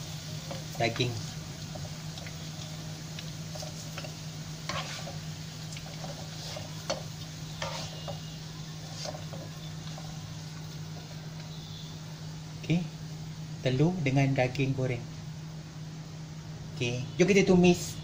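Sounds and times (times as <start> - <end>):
meat sizzling in oil: 0.0 - 13.6
ladle scraping a pan: 4.7 - 5.2, 5.8 - 7.0, 7.6 - 10.1.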